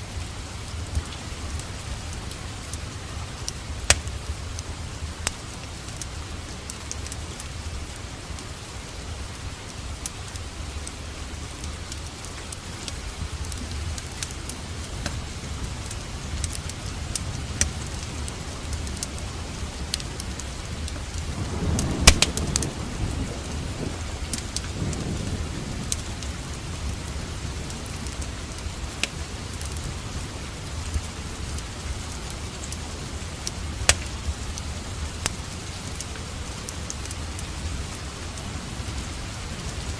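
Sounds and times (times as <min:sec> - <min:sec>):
steady rain: 0:00.0 - 0:39.9
wood fire crackling: 0:00.0 - 0:39.9.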